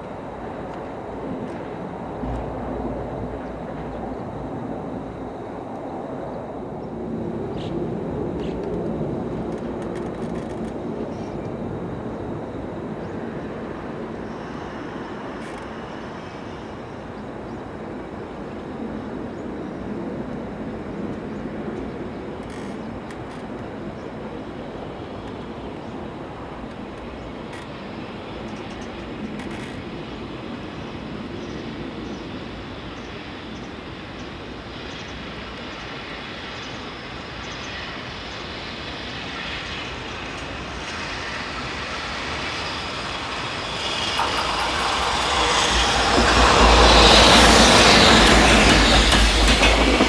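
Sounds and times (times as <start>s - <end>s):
steady background rumble: 0.0s - 15.3s, 41.4s - 50.0s
train wheels rumbling on rail: 35.0s - 50.0s.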